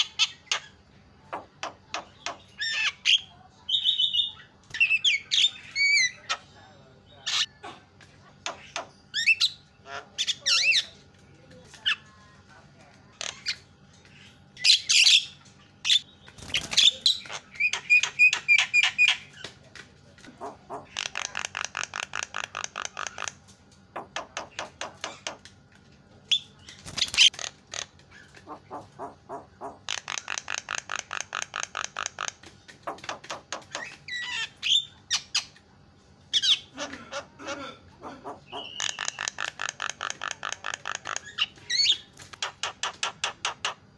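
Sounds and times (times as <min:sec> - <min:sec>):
bird rapid chattering: 0:00.0 - 0:06.5, 0:13.1 - 0:19.5, 0:20.2 - 0:25.4, 0:26.3 - 0:35.6, 0:38.0 - 0:43.9
myna squawking and whistling: 0:38.3 - 0:39.7.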